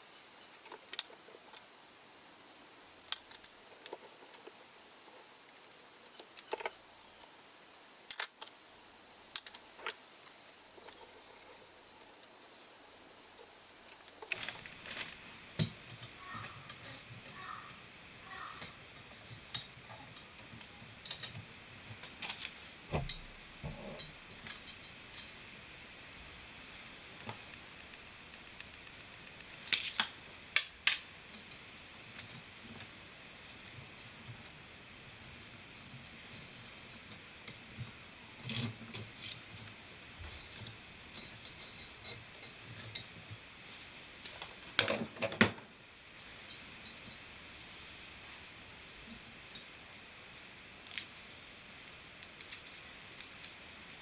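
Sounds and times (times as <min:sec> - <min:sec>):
small metallic clicks and clinks: 0:00.0 - 0:14.5, 0:49.5 - 0:49.8, 0:50.4 - 0:51.2, 0:52.2 - 0:53.9.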